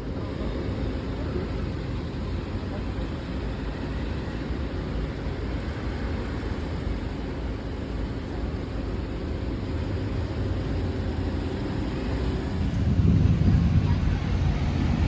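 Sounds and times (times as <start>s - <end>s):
passing street traffic: 0.0s - 15.0s
wind on microphone: 12.4s - 15.0s.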